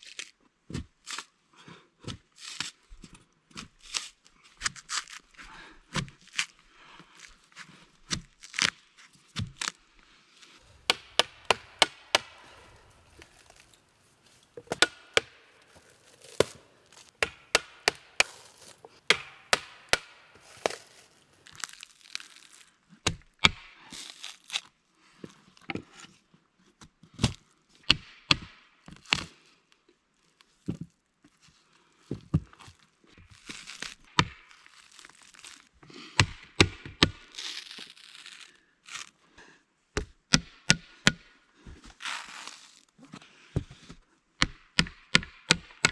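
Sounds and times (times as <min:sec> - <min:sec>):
wood chopping cracks and knocks: 0:10.6 - 0:21.8.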